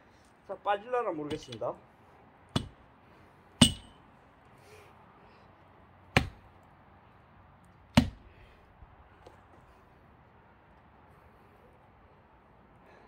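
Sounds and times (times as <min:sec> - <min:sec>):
axe struck in log knocking: 0:02.6 - 0:02.8, 0:03.6 - 0:04.0, 0:06.1 - 0:06.4, 0:08.0 - 0:08.2.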